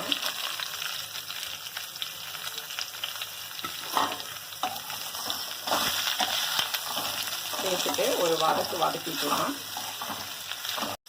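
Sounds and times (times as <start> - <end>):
mango slices sizzling in hot oil: 0.0 - 11.0
spatula scraping pan: 3.6 - 11.0.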